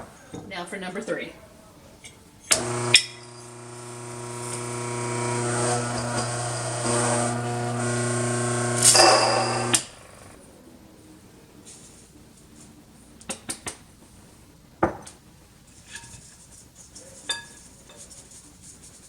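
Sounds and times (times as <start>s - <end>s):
electric grain mill motor hum: 2.5s - 10.4s.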